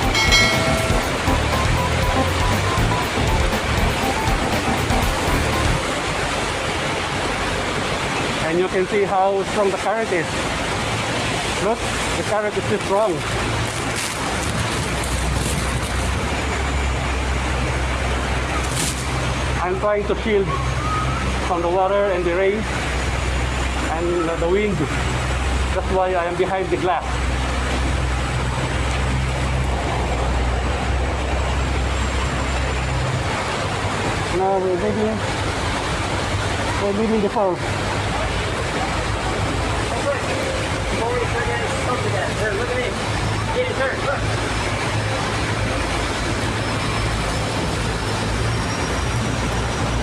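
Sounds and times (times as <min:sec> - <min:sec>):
boat engines droning: 0:00.0 - 0:50.0
rushing waterfall: 0:00.0 - 0:50.0
wind: 0:00.0 - 0:50.0.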